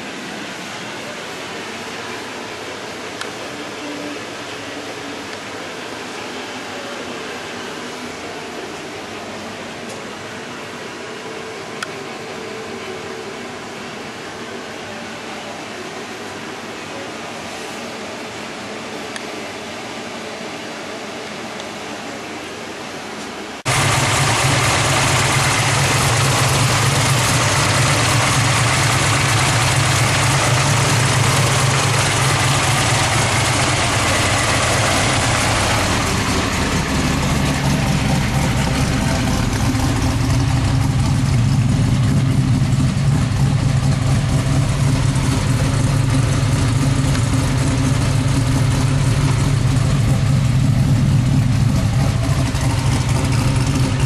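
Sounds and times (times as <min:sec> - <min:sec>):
car engine idling loudly: 0:23.7 - 0:54.0.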